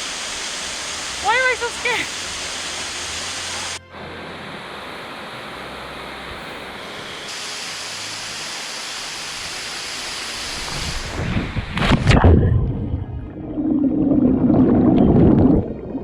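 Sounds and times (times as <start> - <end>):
waterfall rushing into pool: 0.0 - 12.2.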